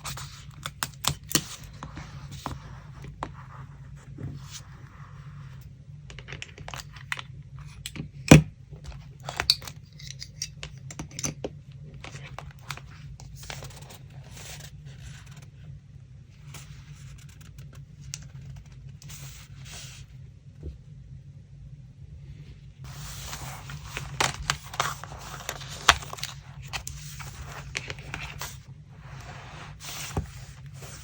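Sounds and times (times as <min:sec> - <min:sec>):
steady low hum: 0:00.0 - 0:31.0
paper rustling: 0:22.9 - 0:31.0.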